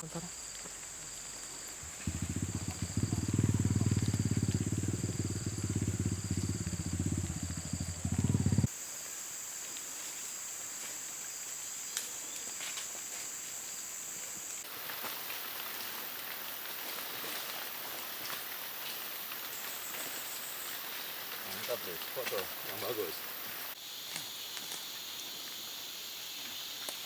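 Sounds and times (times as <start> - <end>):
insect chirping: 0.0 - 27.0
insects buzzing: 0.0 - 27.0
steady hiss: 0.1 - 27.0
engine throbbing: 1.8 - 8.7.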